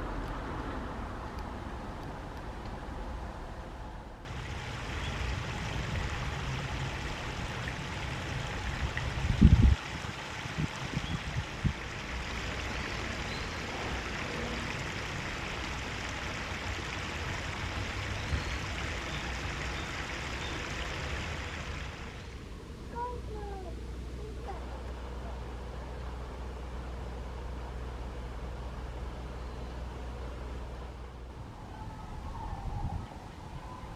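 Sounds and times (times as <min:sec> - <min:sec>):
stream water flowing: 0:04.2 - 0:22.9.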